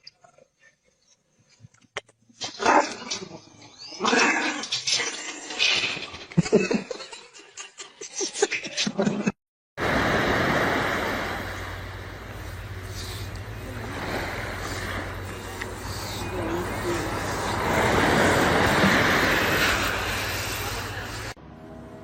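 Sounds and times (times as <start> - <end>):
steady rushing noise: 9.8 - 21.4.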